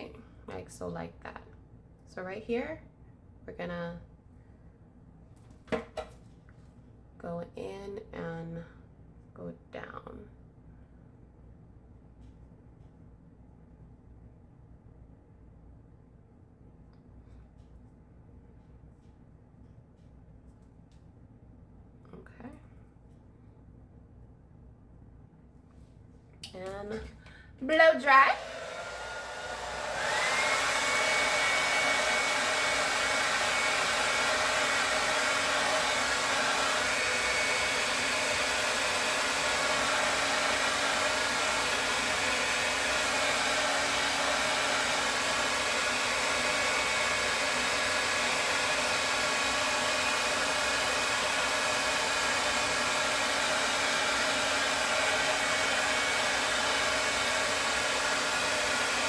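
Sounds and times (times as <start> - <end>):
hair dryer blowing: 27.7 - 59.0.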